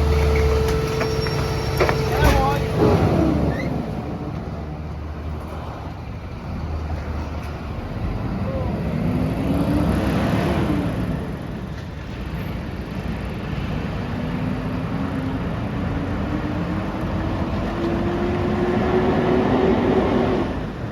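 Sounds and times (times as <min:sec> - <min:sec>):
garbage truck engine revving: 0:00.0 - 0:05.4.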